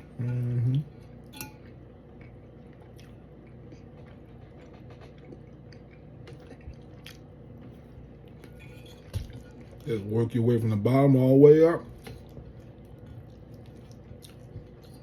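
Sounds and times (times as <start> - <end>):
wet chewing and mouth smacks: 1.7 - 8.5, 11.9 - 15.0.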